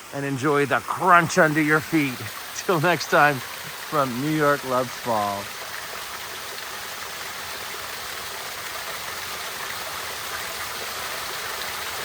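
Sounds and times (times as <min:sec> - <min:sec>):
water splashing over rocks: 0:00.0 - 0:12.0.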